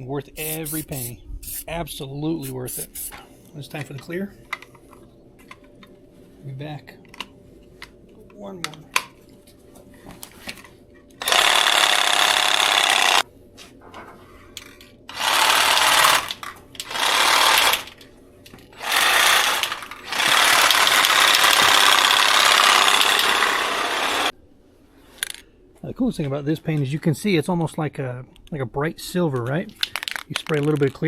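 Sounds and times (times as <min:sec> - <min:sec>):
aerosol spray can spraying: 0:00.4 - 0:01.7, 0:02.4 - 0:03.2.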